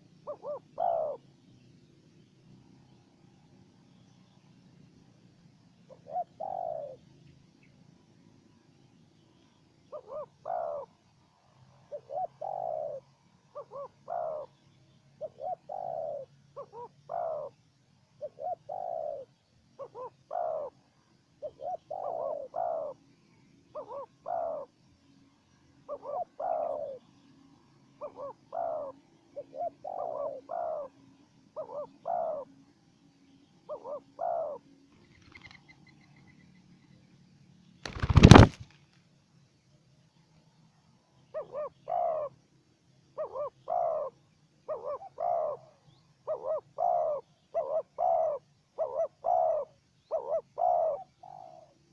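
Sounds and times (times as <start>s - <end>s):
doves cooing: 0.0s - 1.3s, 5.9s - 7.0s, 9.9s - 11.0s, 11.7s - 14.6s, 15.2s - 17.6s, 18.2s - 20.8s, 21.4s - 23.0s, 23.7s - 24.8s, 25.9s - 27.2s, 28.0s - 32.6s, 33.7s - 35.9s, 37.8s - 38.6s, 41.3s - 42.4s, 43.2s - 51.8s.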